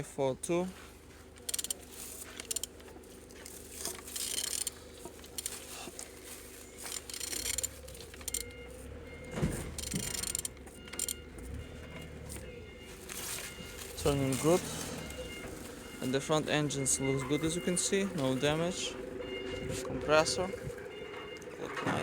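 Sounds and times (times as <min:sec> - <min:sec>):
ratchet wrench clicking: 0:01.5 - 0:02.8, 0:03.8 - 0:05.6, 0:06.8 - 0:08.5, 0:09.8 - 0:11.2.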